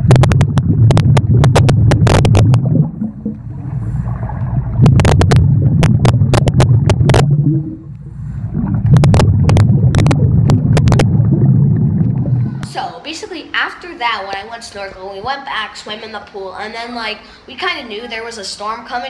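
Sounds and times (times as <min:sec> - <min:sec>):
low underwater rumble: 0:00.0 - 0:12.7
air bubbling underwater: 0:00.0 - 0:12.8.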